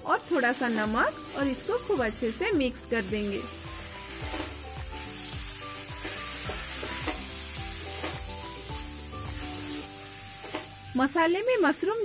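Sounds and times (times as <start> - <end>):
mushrooms sizzling in hot oil: 0.0 - 12.0
background music with low beat: 0.9 - 11.0
spatula stirring in pan: 3.8 - 10.7.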